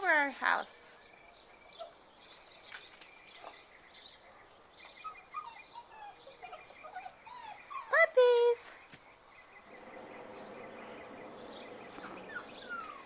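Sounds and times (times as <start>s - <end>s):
small birds chirping: 0.0s - 13.0s
puppies whimpering: 1.6s - 2.1s, 4.9s - 8.3s, 11.2s - 13.0s.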